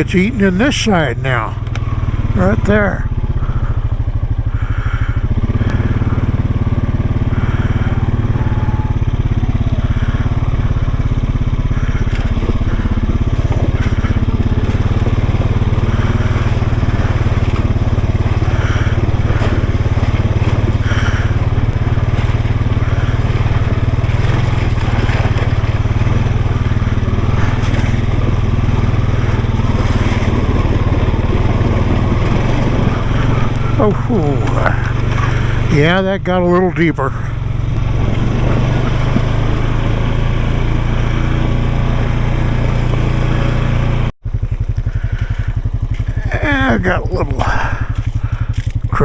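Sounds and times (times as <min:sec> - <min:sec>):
atv engine droning: 0:00.0 - 0:49.0
tyres crunching over gravel: 0:00.0 - 0:49.0.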